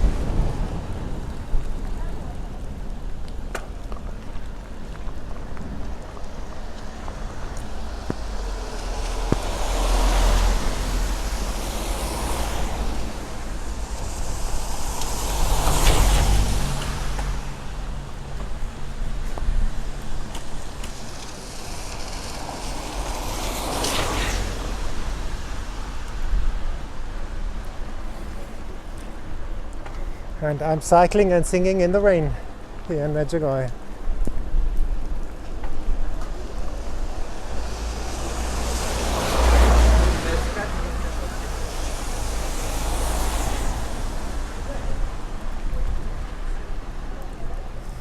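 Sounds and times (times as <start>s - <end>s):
wind rumble on microphone: 0.0s - 30.4s, 33.7s - 48.0s
tyres hissing on wet road: 0.0s - 48.0s
passing vehicle engine: 6.0s - 27.0s, 36.2s - 48.0s.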